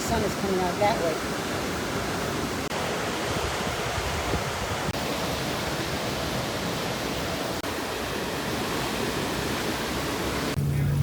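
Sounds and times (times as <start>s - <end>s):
wind and open sea rushing: 0.0s - 11.0s
buffeting low rumble: 10.6s - 11.0s.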